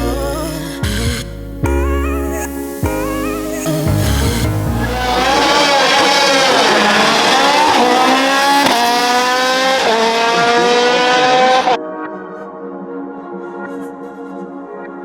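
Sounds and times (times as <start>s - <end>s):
synthesizer music: 0.0s - 15.0s
race car engine accelerating: 4.5s - 11.8s.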